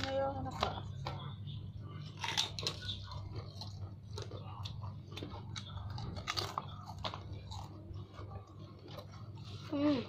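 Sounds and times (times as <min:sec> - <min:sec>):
crunchy food chewing: 0:01.9 - 0:09.7.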